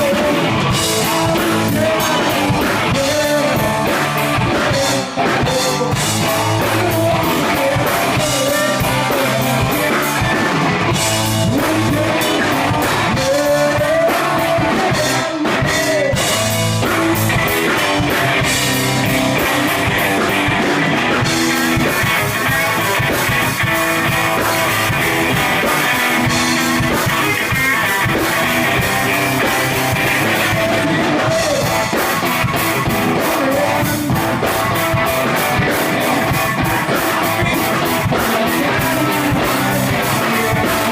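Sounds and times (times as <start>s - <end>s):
bass guitar: 0.0s - 40.9s
drum kit: 0.0s - 40.9s
electric guitars: 0.0s - 40.9s
person singing: 0.0s - 40.9s.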